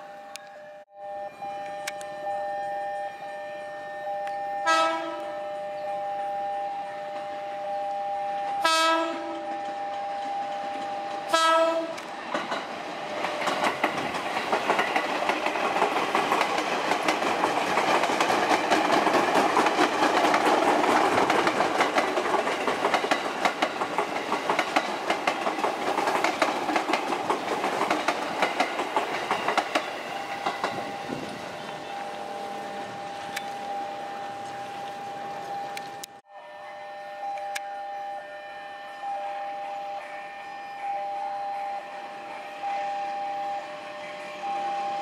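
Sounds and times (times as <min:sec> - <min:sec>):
train horn blast: 0:00.0 - 0:12.2, 0:30.7 - 0:45.0
wheels clicking over rail joints: 0:08.4 - 0:36.2.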